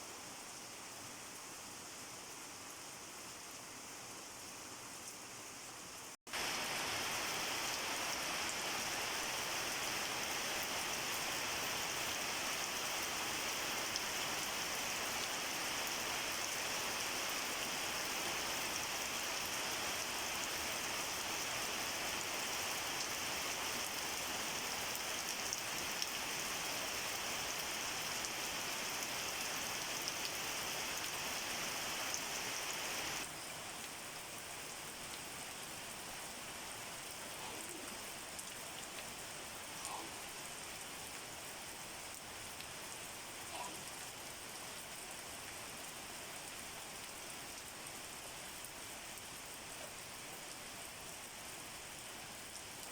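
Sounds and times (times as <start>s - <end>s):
raindrops hitting a surface: 0.0s - 52.9s
steady rain falling: 0.0s - 52.9s.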